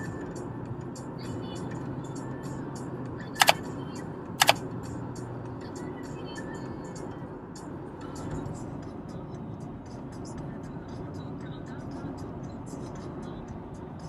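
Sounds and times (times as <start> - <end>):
sharp double clicks: 3.4 - 3.6, 4.4 - 4.6
music with a light beat: 4.4 - 14.0.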